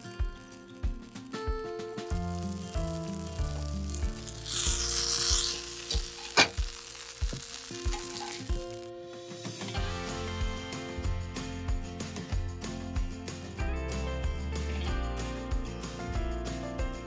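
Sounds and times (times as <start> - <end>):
buns sizzling in oil: 0.0 - 8.9
background music with beat: 0.0 - 17.0.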